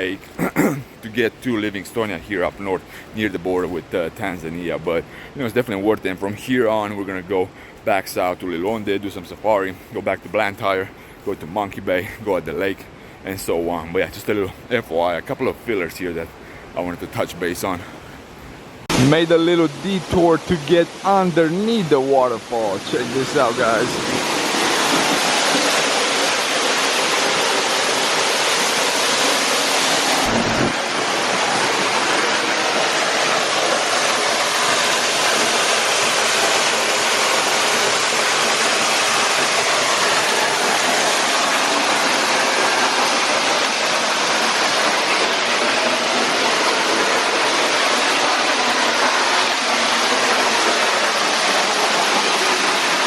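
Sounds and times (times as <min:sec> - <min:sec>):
waterfall rushing: 0:16.0 - 0:53.0.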